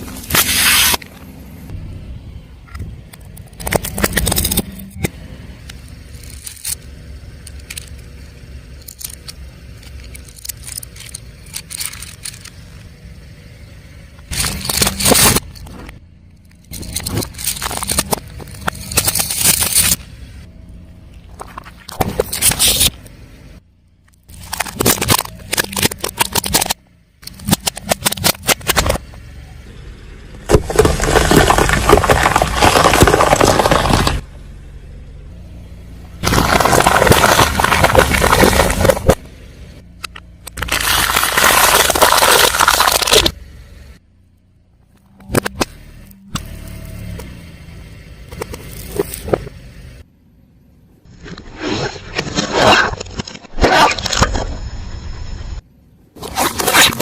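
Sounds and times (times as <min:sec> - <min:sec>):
tyre crunching objects: 0:00.0 - 0:01.2, 0:14.3 - 0:16.0, 0:16.6 - 0:20.1, 0:24.2 - 0:29.1, 0:30.4 - 0:34.3, 0:36.2 - 0:39.3, 0:40.5 - 0:43.4, 0:51.1 - 0:54.5, 0:56.2 - 0:57.0
low car engine rumble: 0:00.0 - 0:52.4, 0:54.1 - 0:57.0.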